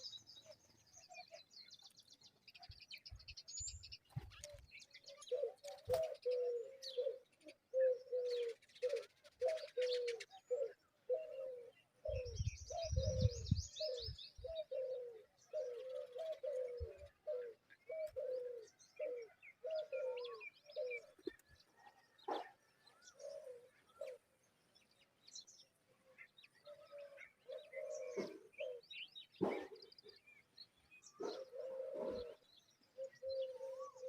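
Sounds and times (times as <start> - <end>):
small birds chirping: 0.0 - 34.0
dove cooing: 4.4 - 24.3, 26.6 - 30.0, 31.1 - 34.0.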